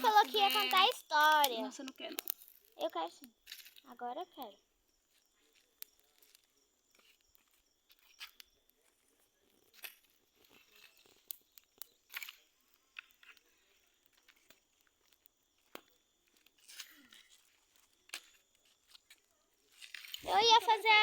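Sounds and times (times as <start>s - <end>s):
faint irregular clicks: 0.0s - 20.9s.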